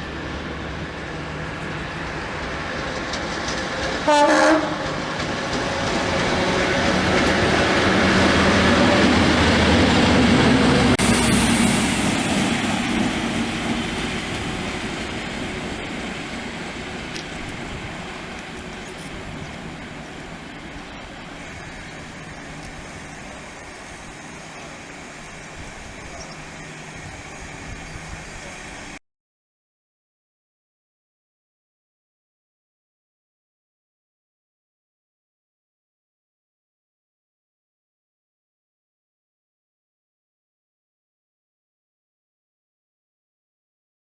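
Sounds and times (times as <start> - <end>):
train rumbling past: 0.0 - 29.0
train horn blast: 4.0 - 5.1.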